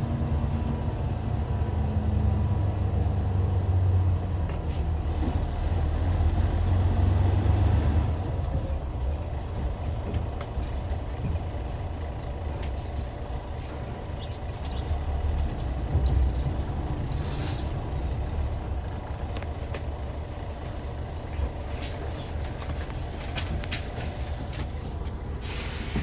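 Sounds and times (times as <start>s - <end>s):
diesel engine rumbling: 0.0s - 26.0s
brief hiss: 25.4s - 26.0s.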